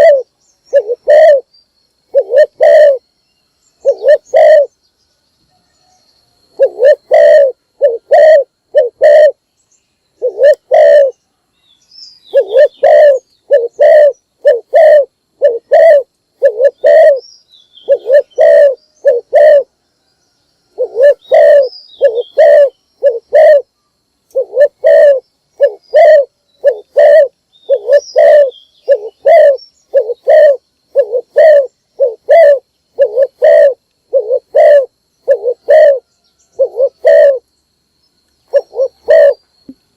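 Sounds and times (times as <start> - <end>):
dove cooing: 0.0 - 1.5, 2.1 - 3.0, 3.8 - 4.7, 6.6 - 9.4, 10.2 - 11.2, 12.3 - 17.2, 17.8 - 19.8, 20.8 - 23.7, 24.3 - 37.4, 38.5 - 39.4
small birds chirping: 0.0 - 5.2, 5.8 - 39.9.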